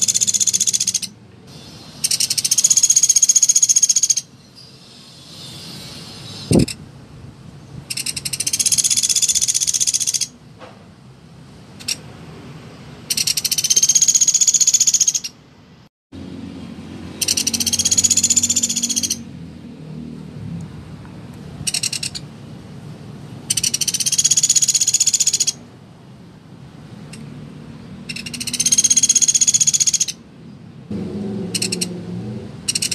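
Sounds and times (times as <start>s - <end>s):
woodpecker rattling trills: 0.0s - 1.2s, 2.0s - 4.3s, 7.9s - 10.3s, 13.1s - 15.4s, 17.2s - 19.2s, 21.7s - 22.2s, 23.5s - 25.6s, 28.1s - 30.2s, 31.6s - 31.9s, 32.7s - 32.9s.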